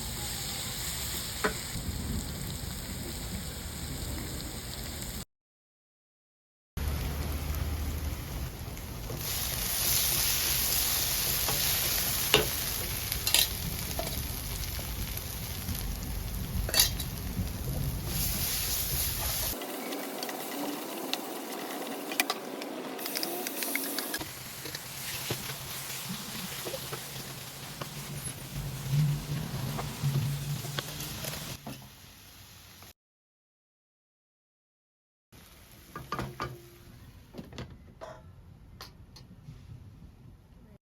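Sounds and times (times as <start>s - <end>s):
chicken sizzling in a pan: 0.0s - 5.2s, 6.8s - 22.3s, 23.0s - 32.9s.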